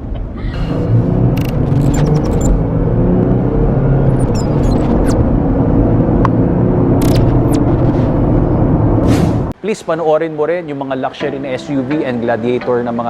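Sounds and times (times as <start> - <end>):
road rumble: 0.0 - 9.6
vehicle engine drone: 0.0 - 9.6
faint chirps and clicks: 1.4 - 2.6, 4.1 - 5.2.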